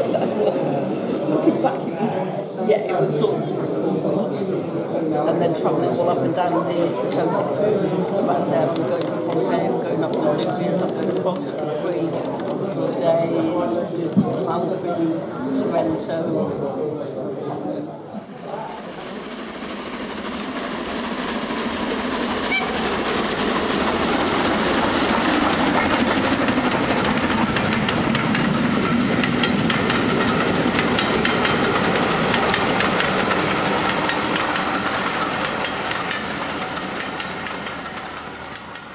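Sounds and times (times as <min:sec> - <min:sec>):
model train wheels clattering: 0:07.7 - 0:13.0, 0:20.9 - 0:38.9.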